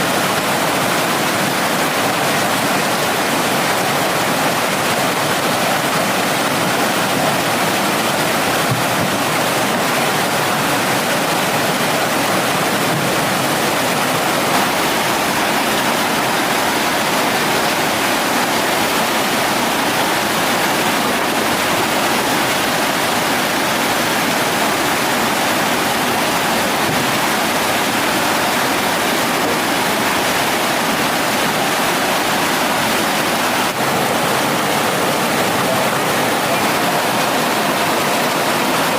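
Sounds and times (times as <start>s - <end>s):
mountain stream water rushing: 0.0s - 38.9s.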